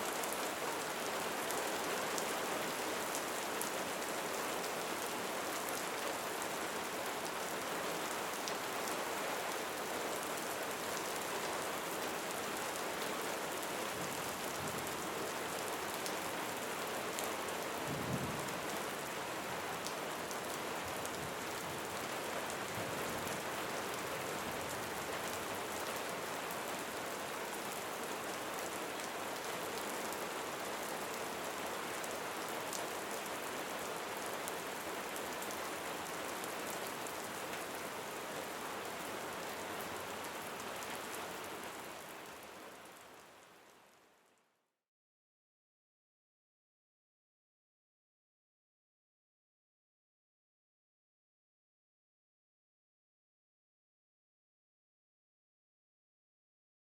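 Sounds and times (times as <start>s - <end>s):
rain pattering: 0.1s - 44.0s.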